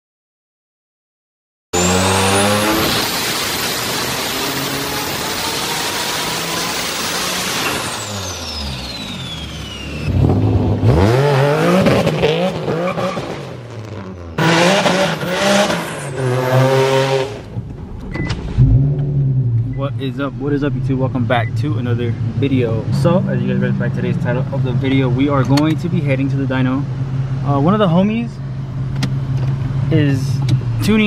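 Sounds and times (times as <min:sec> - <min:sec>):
another engine revving hard: 0:01.8 - 0:17.5
turbocharged car engine revving: 0:01.8 - 0:31.0.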